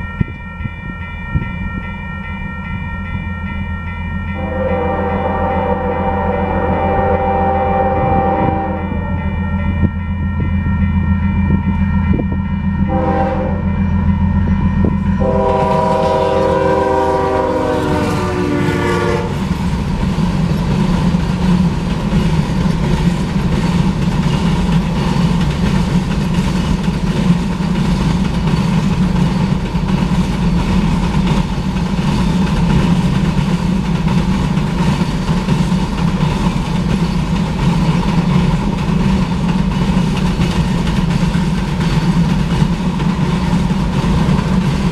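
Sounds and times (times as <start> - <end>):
locomotive air horn: 4.4 - 9.5, 12.9 - 13.8, 15.2 - 19.5
train wheels clacking on rails: 9.7 - 44.9.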